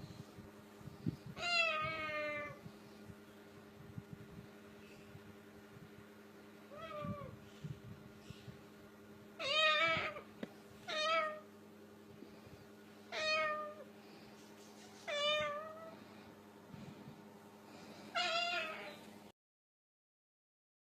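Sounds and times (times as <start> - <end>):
parrot mimicking cat meow: 1.4 - 2.6, 9.4 - 10.2.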